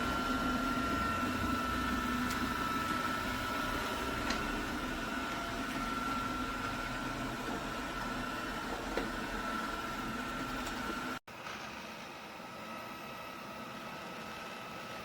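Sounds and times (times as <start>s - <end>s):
robot vacuum motor whine: 0.0s - 11.2s.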